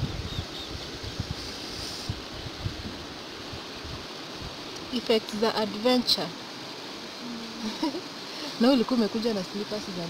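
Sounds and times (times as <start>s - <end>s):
wind buffeting microphone: 0.0s - 5.0s
flowing river water: 0.0s - 10.0s.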